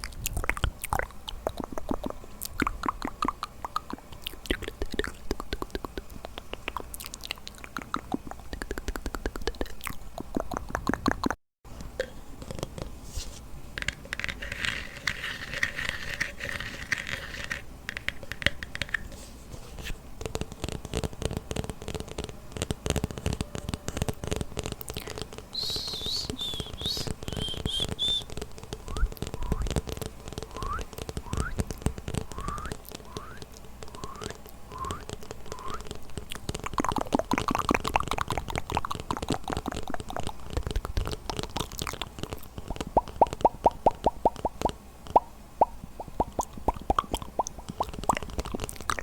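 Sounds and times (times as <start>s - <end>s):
lip smacks and tongue clicks: 0.0s - 11.4s, 23.3s - 49.0s.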